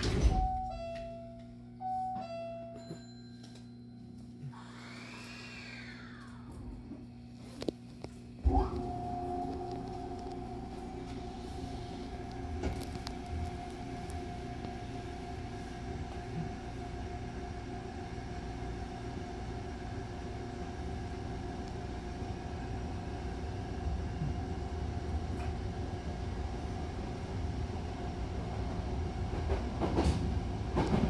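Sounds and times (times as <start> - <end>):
constant hum: 0.0 - 31.0
train wheels rumbling on rail: 23.6 - 31.0.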